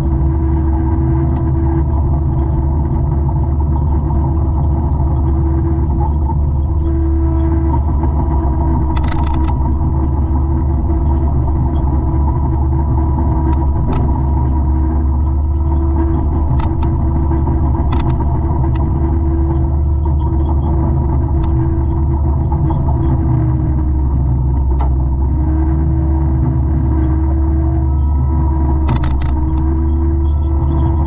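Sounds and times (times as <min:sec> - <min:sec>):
mulcher engine drone: 0:00.0 - 0:31.0.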